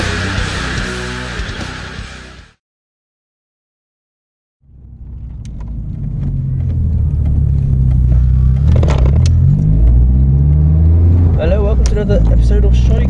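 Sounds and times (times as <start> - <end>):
car engine low hum: 4.6 - 13.0.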